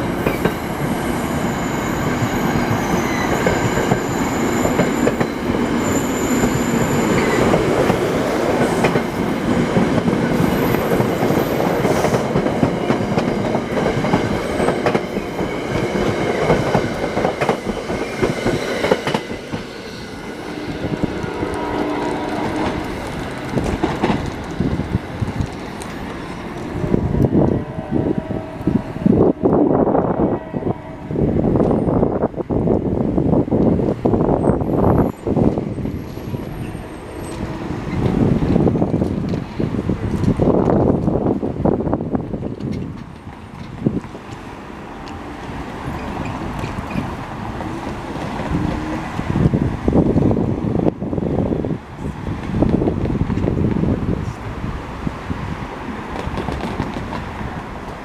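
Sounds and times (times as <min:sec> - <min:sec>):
train coaches rolling past: 0:00.0 - 0:58.0
faint high wheel squeals: 0:05.8 - 0:07.4.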